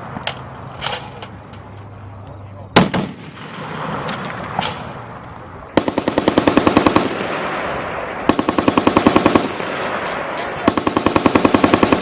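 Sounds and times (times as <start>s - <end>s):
heavy machine gun bursts: 5.8s - 7.5s, 8.3s - 12.0s.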